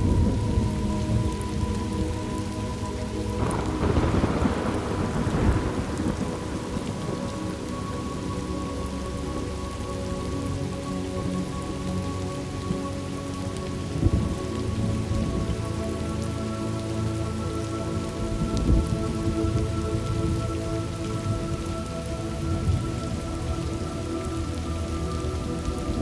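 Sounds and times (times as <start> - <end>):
thunder rumbling: 0.0 - 9.2, 18.0 - 26.0
steady rain: 0.0 - 26.0.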